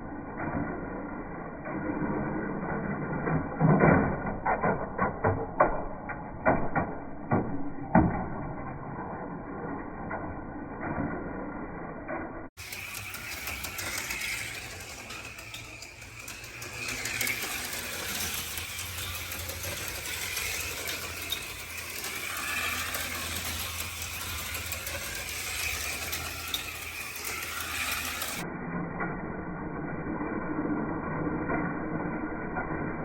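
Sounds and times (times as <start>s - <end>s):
cars rattling in track slot: 12.6s - 28.4s
small electric motors whirring: 12.6s - 28.4s.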